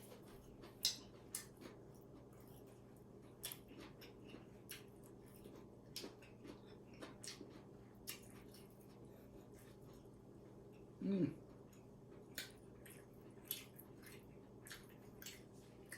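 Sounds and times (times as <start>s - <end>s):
eating clicks and smacks: 0.0s - 2.6s, 3.2s - 9.0s, 11.6s - 15.9s.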